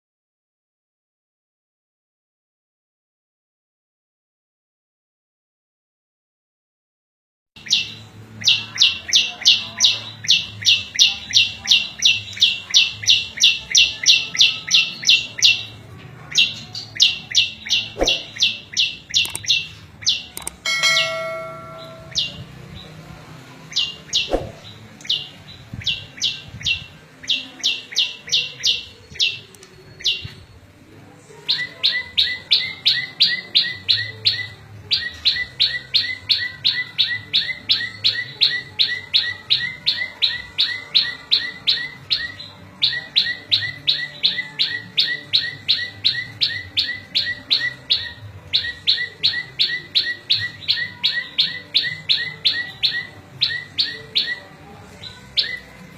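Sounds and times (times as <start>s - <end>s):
songbird sharp high notes: 20.4s - 22.6s.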